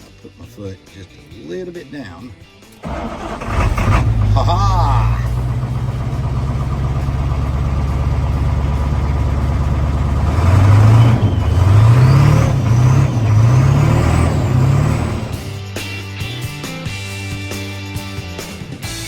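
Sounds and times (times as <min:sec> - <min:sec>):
diesel engine idling and revving: 0:02.8 - 0:15.8.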